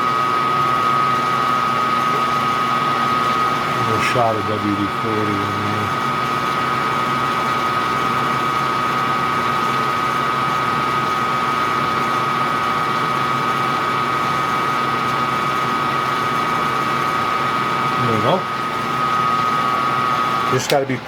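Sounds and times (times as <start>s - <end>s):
metal lathe whining and humming: 0.0s - 21.0s
drill bit cutting metal: 1.2s - 6.9s.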